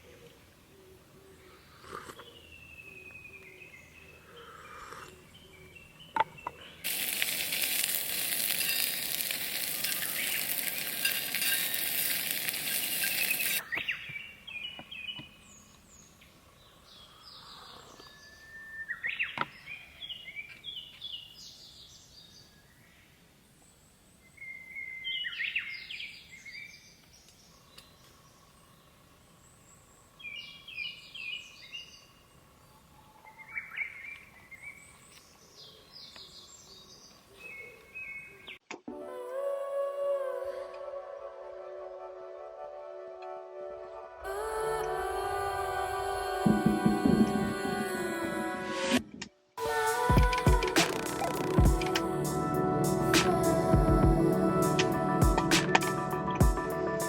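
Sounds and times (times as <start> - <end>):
birds chirping: 0.0 - 23.1
food sizzling in a pan: 6.8 - 13.6.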